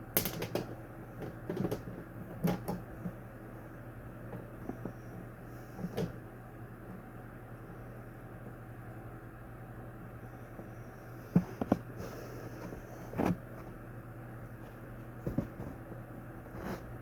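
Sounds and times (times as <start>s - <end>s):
steady low hum: 0.0s - 17.0s
plastic fan knocks and clicks: 0.1s - 3.2s, 15.2s - 15.8s.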